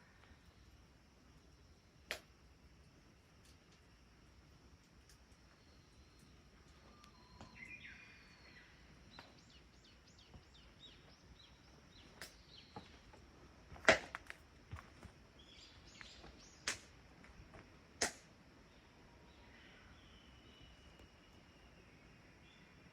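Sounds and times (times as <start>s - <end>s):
small birds chirping faintly: 0.0s - 22.9s.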